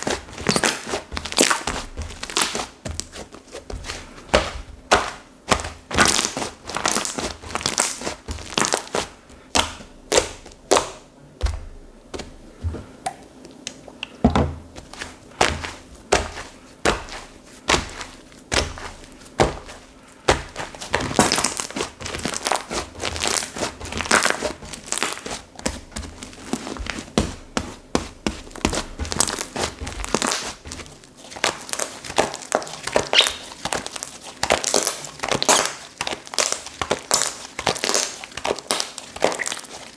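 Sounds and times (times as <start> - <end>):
slime crackling and popping: 0.0 - 3.1, 4.3 - 11.0, 20.3 - 26.9, 28.4 - 39.9.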